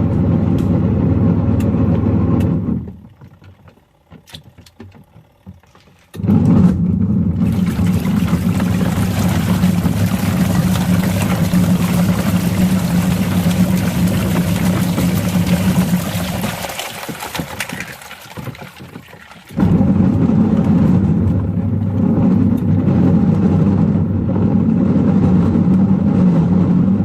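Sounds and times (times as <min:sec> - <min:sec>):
washing machine drum motor humming: 0:00.0 - 0:27.0
washing machine clicks: 0:01.6 - 0:22.7
water sloshing in washing machine: 0:01.7 - 0:27.0.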